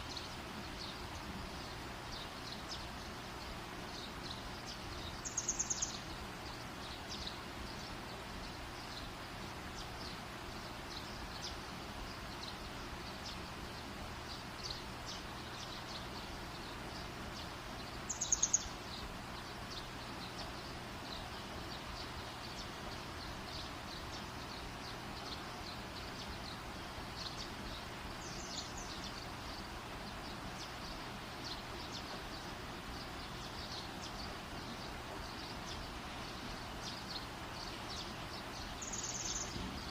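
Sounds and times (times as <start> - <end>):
high rapid trilling calls: 5.2 - 6.0, 18.1 - 18.9, 38.6 - 39.6.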